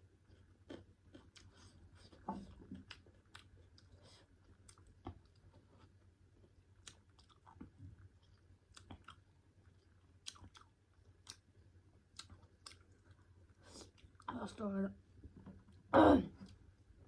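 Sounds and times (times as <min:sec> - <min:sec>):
close-up chewing: 0:00.1 - 0:14.3.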